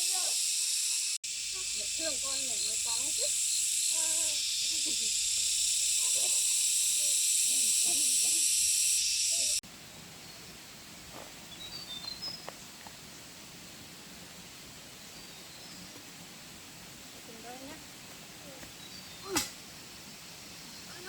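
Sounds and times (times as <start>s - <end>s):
loud high-pitched hiss: 0.0s - 12.2s
outdoor background: 0.0s - 21.0s.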